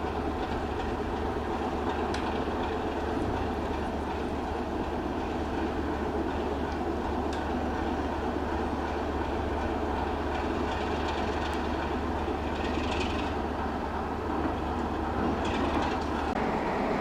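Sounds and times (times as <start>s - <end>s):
rail vehicles running: 0.0s - 17.0s.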